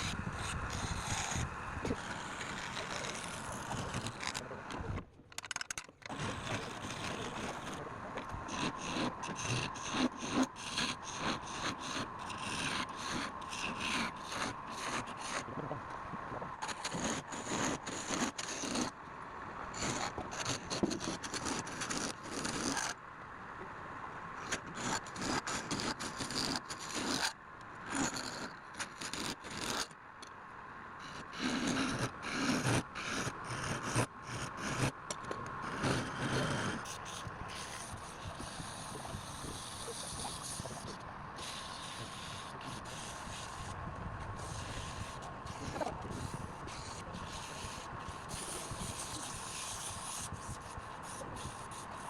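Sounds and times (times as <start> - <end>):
tool scraping spinning wood: 0.0 - 4.4, 8.5 - 15.5, 16.6 - 18.9, 24.8 - 27.3, 31.1 - 52.0.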